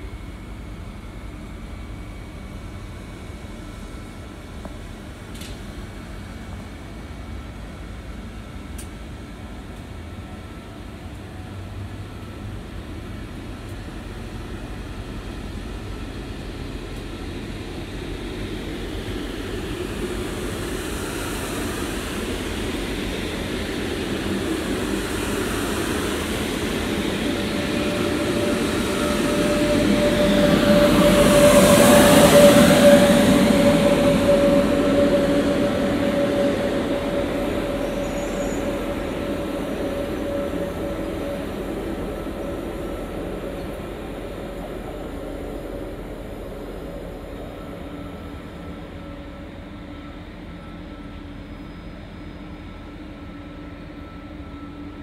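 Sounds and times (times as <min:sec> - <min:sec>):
electric whine of train: 0:00.0 - 0:55.0
train wheels rumbling on rail: 0:00.0 - 0:55.0.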